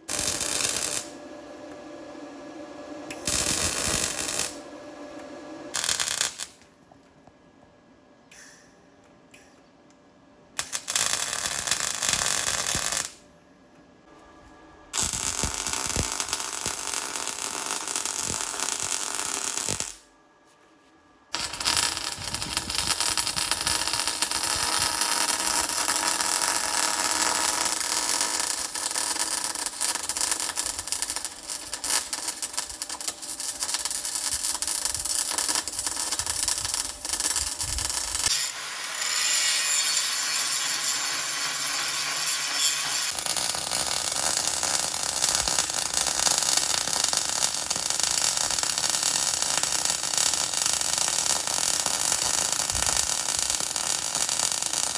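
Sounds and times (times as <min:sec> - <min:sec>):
welder arc crackling: 0:00.0 - 0:01.8, 0:03.0 - 0:06.6, 0:10.6 - 0:13.2, 0:15.0 - 0:20.0, 0:21.3 - 0:54.9.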